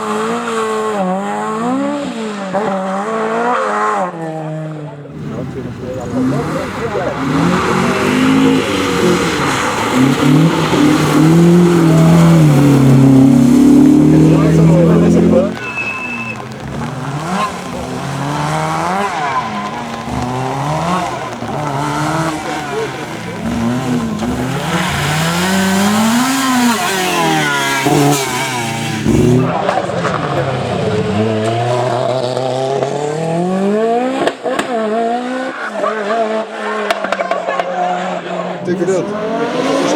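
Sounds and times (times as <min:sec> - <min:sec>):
car engine revving: 0:00.0 - 0:39.9
tyre and road noise: 0:00.0 - 0:39.9
sharp cracks: 0:05.2 - 0:30.4.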